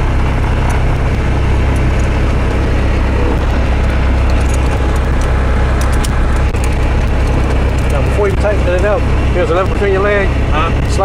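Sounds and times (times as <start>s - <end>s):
plane engine and propeller droning: 0.0s - 11.0s.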